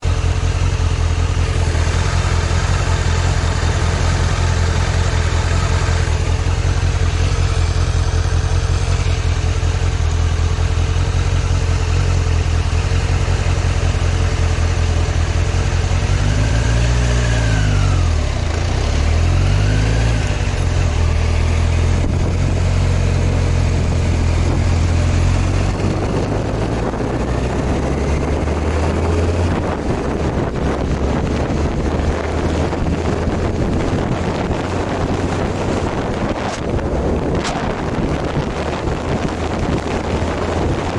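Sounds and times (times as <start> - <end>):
motorcycle engine running and revving: 0.0 - 40.9
rushing wind noise: 12.9 - 40.9.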